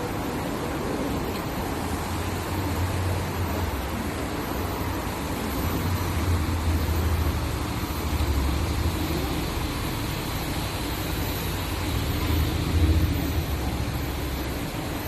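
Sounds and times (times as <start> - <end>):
even hiss: 0.0 - 15.0.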